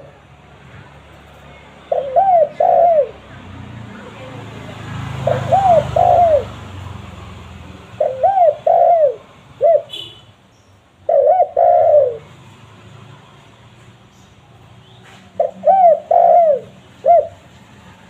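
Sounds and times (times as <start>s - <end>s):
dove cooing: 1.9s - 3.5s, 5.1s - 6.6s, 8.0s - 10.0s, 11.0s - 12.4s, 15.3s - 17.6s.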